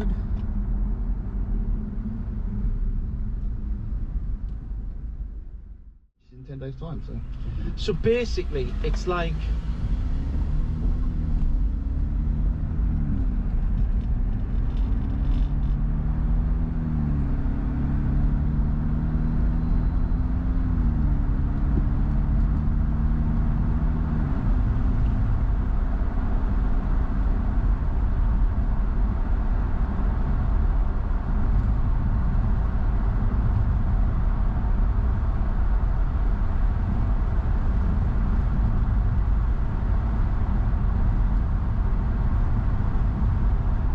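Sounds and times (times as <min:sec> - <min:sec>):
deep tyre rumble: 0:00.0 - 0:43.9
car engine revving through gears: 0:07.2 - 0:27.4.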